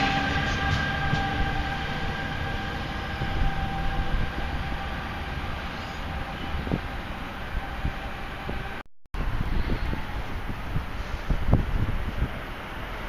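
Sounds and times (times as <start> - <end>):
high whine: 0.0 - 11.9
train rumbling on track: 0.0 - 13.0.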